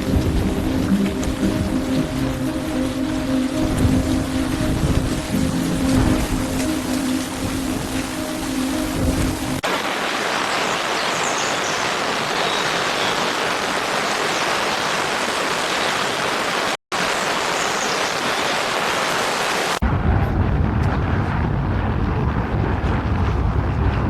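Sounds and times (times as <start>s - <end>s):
wind buffeting the microphone: 3.5s - 8.2s, 19.8s - 24.0s.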